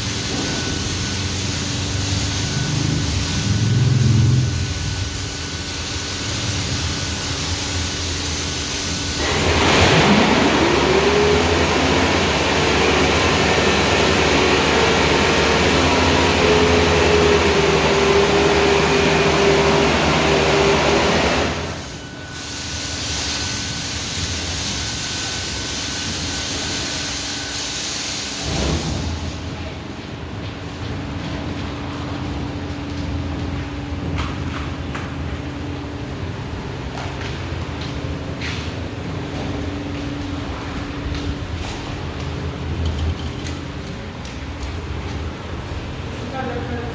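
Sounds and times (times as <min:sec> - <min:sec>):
water jets spraying: 0:00.0 - 0:29.6
pump motor whine: 0:00.0 - 0:29.8.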